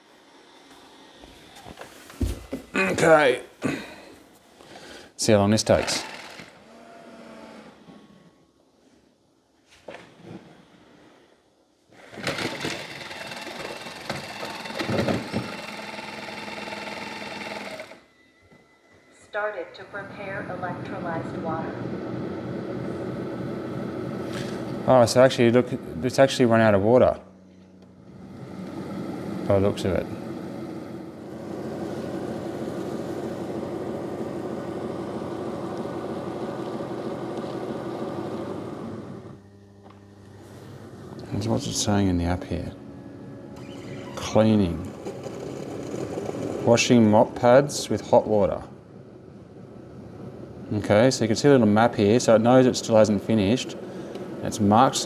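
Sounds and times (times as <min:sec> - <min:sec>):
mechanical whir of mop dock: 0:05.7 - 0:08.4, 0:12.0 - 0:18.1, 0:27.6 - 0:47.6, 0:51.6 - 0:55.0
pump and motor humming: 0:12.1 - 0:18.0.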